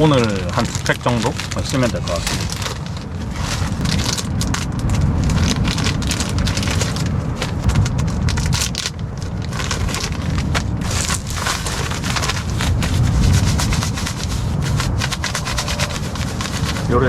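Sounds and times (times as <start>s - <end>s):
packets crinkling and rustling: 0.0s - 17.0s
steady low rumble: 0.0s - 17.0s.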